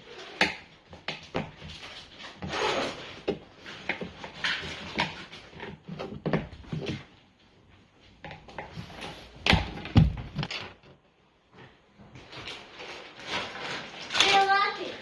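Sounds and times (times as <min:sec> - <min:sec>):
toys clicking and rustling: 0:12.2 - 0:15.0.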